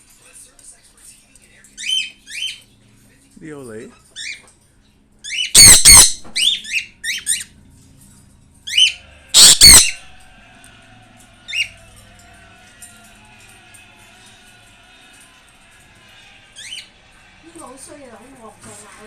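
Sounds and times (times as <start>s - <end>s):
birds screeching: 1.8s - 2.7s, 4.0s - 4.5s, 5.2s - 7.5s, 8.7s - 10.1s, 11.5s - 11.8s, 16.6s - 16.9s
birds chirping: 5.3s - 7.5s, 8.7s - 10.1s.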